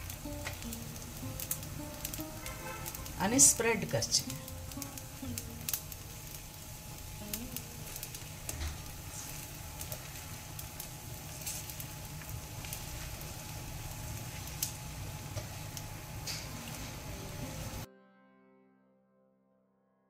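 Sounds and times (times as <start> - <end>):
spoon spreading crackles: 0.0 - 17.8
food sizzling on griddle: 0.0 - 17.9
low steady hum: 0.0 - 17.9.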